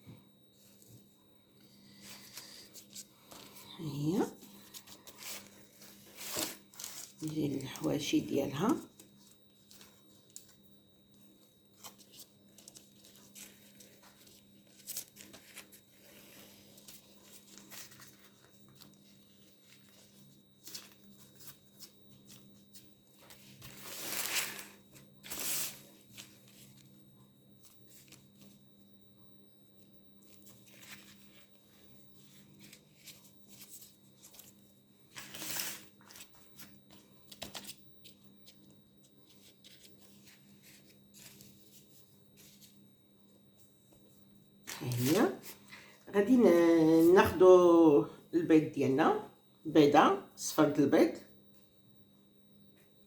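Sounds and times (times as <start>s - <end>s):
faint steady hum: 0.0s - 53.0s
pastry sheets crinkling and rustling: 1.8s - 28.8s, 29.8s - 42.9s.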